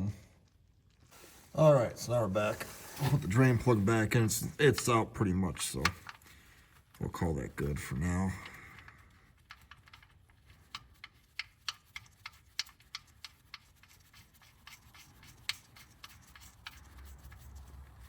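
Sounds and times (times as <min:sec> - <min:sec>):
drain plug clicking and tapping: 0:04.6 - 0:05.0, 0:05.7 - 0:06.2.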